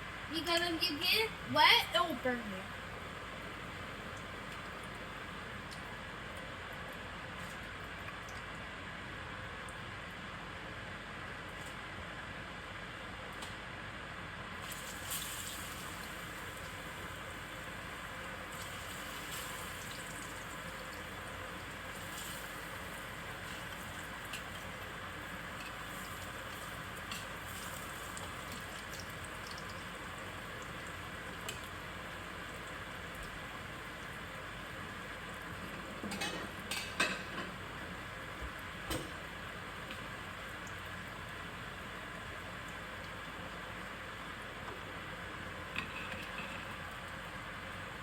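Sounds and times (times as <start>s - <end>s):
food sizzling in hot oil: 14.6s - 44.4s.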